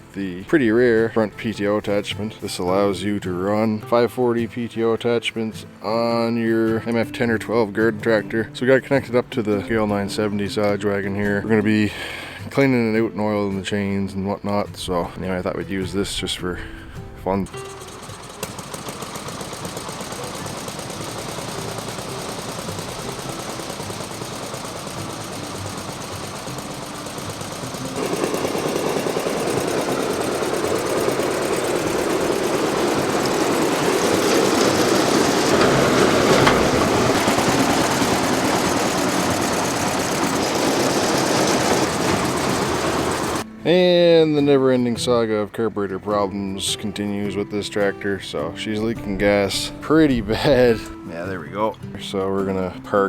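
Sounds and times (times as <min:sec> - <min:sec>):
small tractor engine running: 0:17.3 - 0:43.5.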